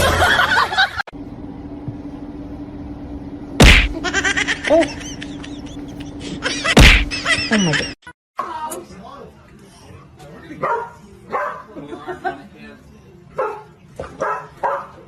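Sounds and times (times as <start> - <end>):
steady low hum: 1.2 - 8.0
loud smack: 3.6 - 4.0, 6.7 - 7.2.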